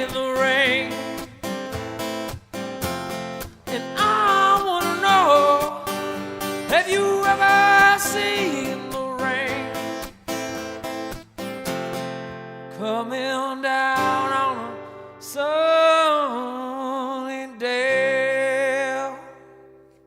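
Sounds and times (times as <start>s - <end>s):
acoustic guitar strumming: 0.0s - 20.0s
person singing long notes: 3.7s - 6.1s, 6.7s - 9.8s.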